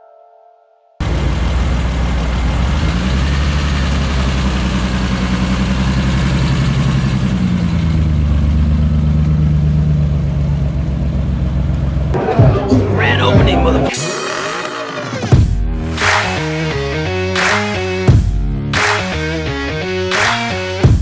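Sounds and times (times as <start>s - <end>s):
car engine running at low revs: 1.0s - 12.2s.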